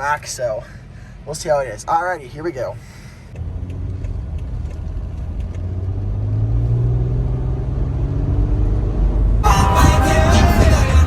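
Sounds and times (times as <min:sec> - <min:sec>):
road rumble: 0:00.0 - 0:11.0
car engine accelerating: 0:03.4 - 0:11.0.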